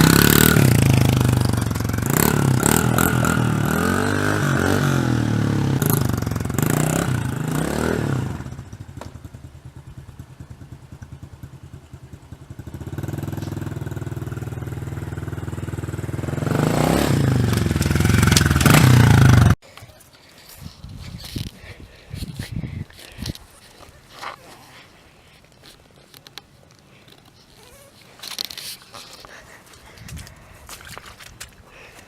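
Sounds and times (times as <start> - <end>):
dirt bike engine revving: 0.0 - 9.8, 12.4 - 19.6.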